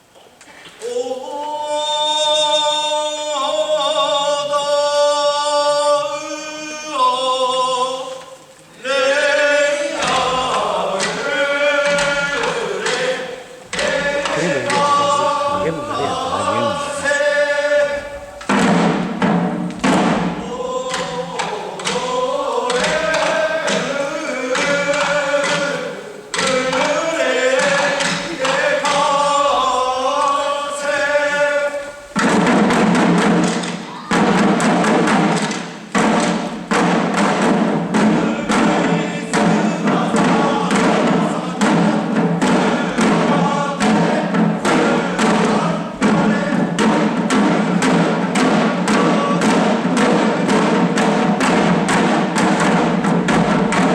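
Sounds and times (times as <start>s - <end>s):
group singing chant-like song: 0.8s - 53.9s
drum beating fast rhythm: 13.7s - 17.2s.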